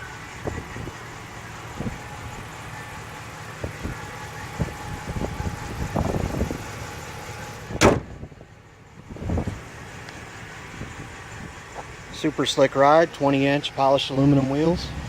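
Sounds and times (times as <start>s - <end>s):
loud slam: 7.8s - 8.2s.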